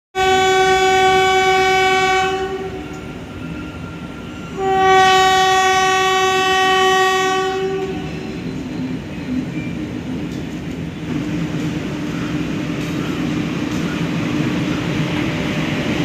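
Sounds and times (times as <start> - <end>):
train horn blasts: 0.2 - 3.0, 4.5 - 8.5
passing train running noise: 0.2 - 16.0.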